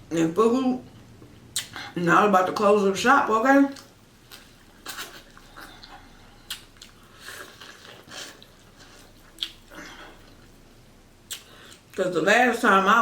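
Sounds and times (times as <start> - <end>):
wet mouth clicks and smacks: 1.6 - 1.8, 3.7 - 7.0, 9.2 - 9.7, 11.2 - 12.0
person biting and chewing food: 3.8 - 12.0.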